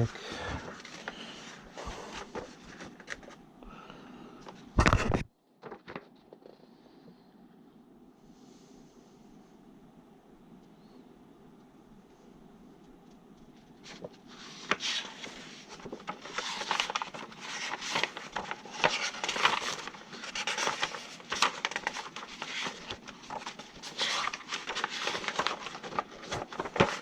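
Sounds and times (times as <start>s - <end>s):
hands rustling and crinkling: 12.2s - 27.0s.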